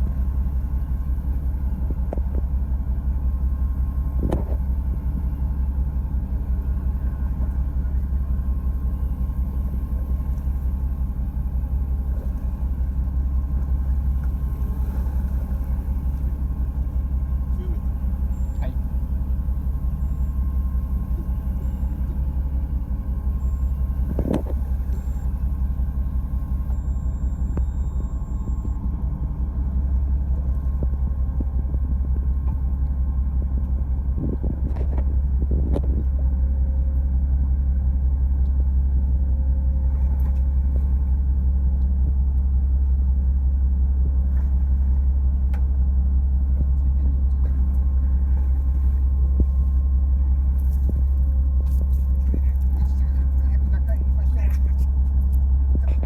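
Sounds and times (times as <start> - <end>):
boat engine low rumble: 0.0 - 56.0.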